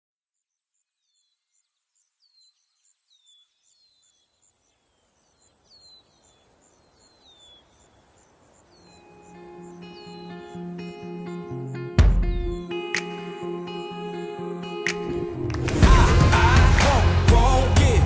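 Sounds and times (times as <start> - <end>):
high insect chirping: 1.4 - 13.2.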